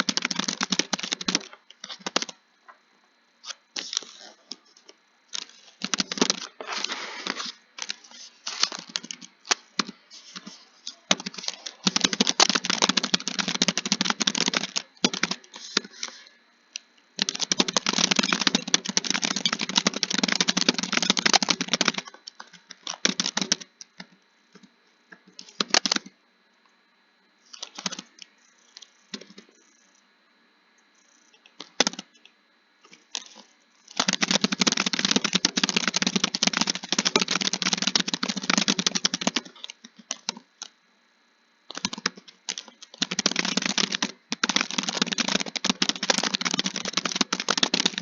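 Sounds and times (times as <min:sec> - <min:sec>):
fast typing on keyboard: 0:00.0 - 0:02.4, 0:05.3 - 0:06.6, 0:07.4 - 0:16.2, 0:17.2 - 0:24.2, 0:25.4 - 0:26.1, 0:27.6 - 0:28.2, 0:31.6 - 0:32.1, 0:33.1 - 0:40.7, 0:41.7 - 0:48.0.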